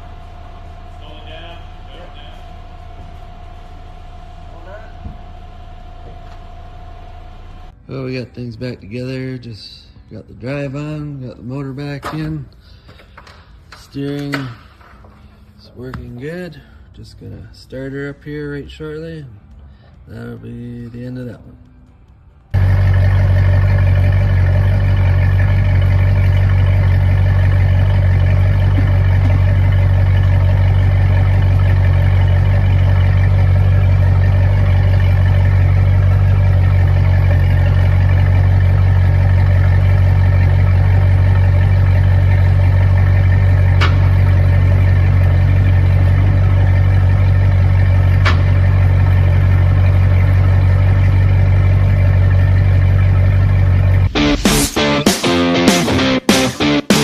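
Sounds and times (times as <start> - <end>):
boat engine idling: 0.0 - 7.8, 22.6 - 54.7.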